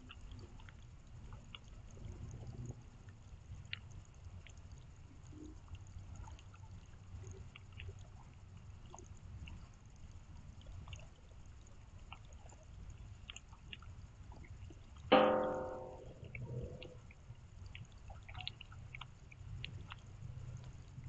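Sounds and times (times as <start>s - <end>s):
rain dripping: 0.0s - 21.0s
loud ringing note: 15.1s - 16.2s.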